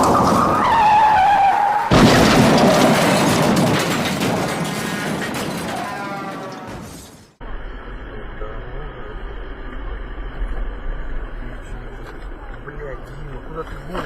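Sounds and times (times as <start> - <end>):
car tyres screeching: 0.0 - 3.4
loud collision impact: 1.9 - 7.4.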